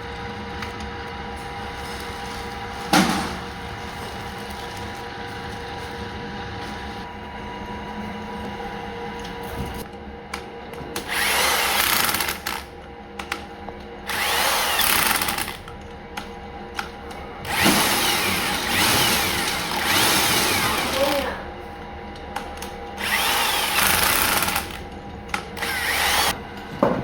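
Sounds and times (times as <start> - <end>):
workshop machine hum: 0.0 - 27.0
power tool running: 10.9 - 13.4, 14.0 - 15.7, 17.4 - 21.4, 22.6 - 26.4.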